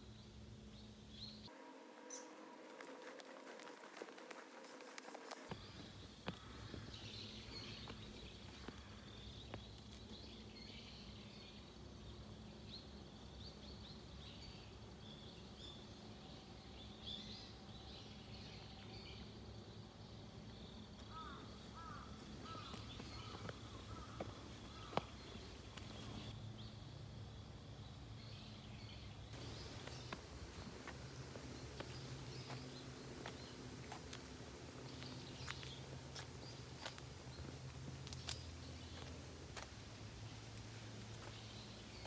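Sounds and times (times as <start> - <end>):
small birds chirping: 0.2 - 15.9, 20.5 - 26.4, 28.2 - 42.0
steady low hum: 20.6 - 42.0
bird call notes: 21.1 - 26.3.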